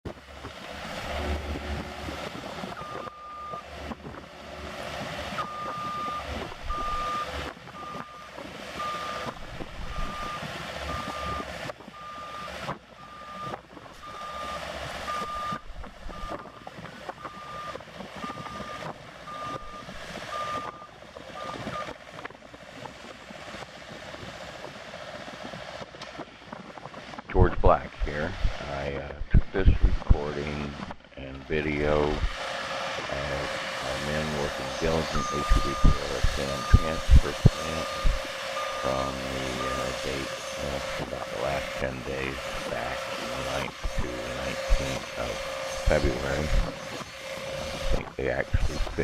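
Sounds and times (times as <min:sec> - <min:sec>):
steady noisy background: 0:00.1 - 0:49.0
reversing alarm beeping: 0:01.2 - 0:22.0, 0:33.1 - 0:49.0.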